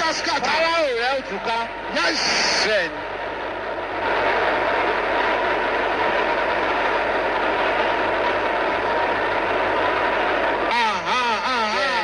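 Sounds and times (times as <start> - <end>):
congregation praying aloud: 0.0 - 3.1, 10.7 - 12.0.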